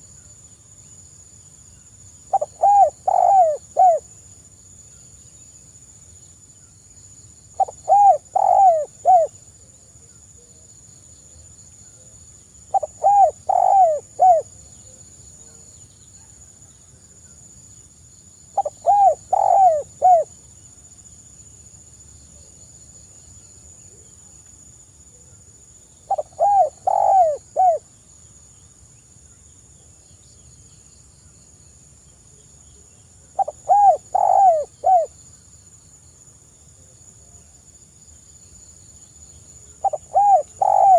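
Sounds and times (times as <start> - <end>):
dove cooing: 2.3 - 4.0, 7.6 - 9.3, 12.7 - 14.5, 18.6 - 20.3, 26.1 - 27.8, 33.4 - 35.1, 39.8 - 40.9.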